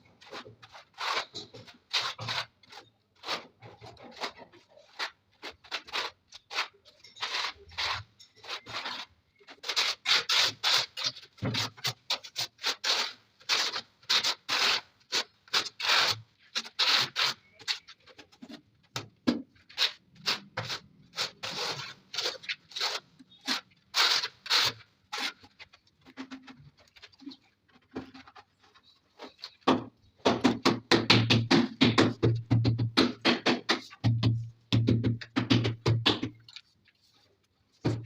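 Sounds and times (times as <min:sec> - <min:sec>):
scraping on tiled wall: 0:00.2 - 0:18.6.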